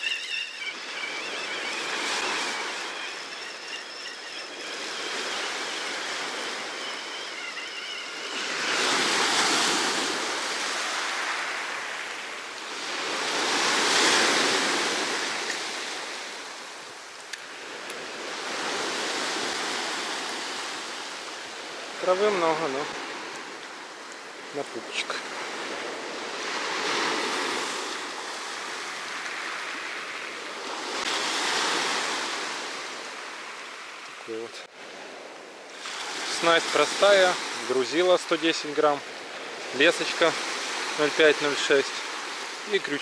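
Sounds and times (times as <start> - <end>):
small waves washing up a beach: 0.0 - 43.0.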